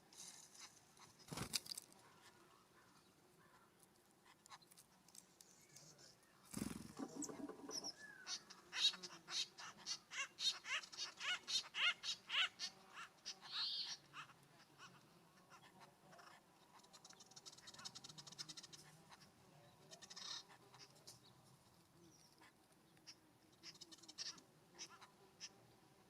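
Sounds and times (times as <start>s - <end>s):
birds calling: 5.6s - 25.8s.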